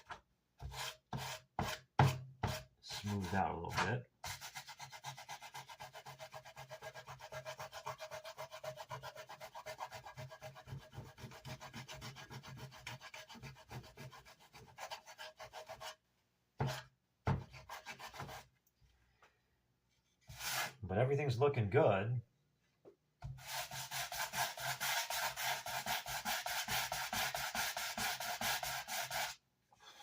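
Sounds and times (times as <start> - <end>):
hand sanding wood: 0.6 - 16.0, 17.5 - 18.5, 20.3 - 20.8, 23.3 - 29.4.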